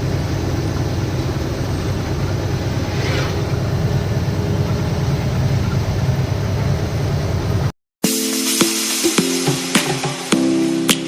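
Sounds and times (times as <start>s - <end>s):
diesel lorry engine droning: 0.0s - 7.7s
road noise: 0.0s - 7.7s
faint hiss: 8.1s - 11.0s.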